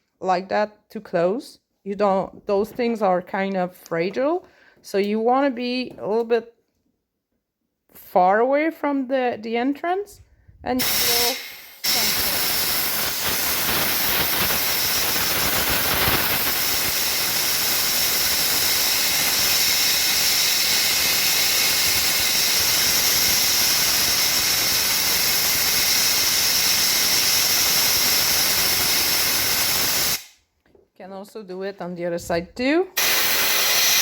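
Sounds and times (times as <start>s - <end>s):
compressed air blow gun hissing: 10.8s - 30.4s, 33.0s - 34.0s.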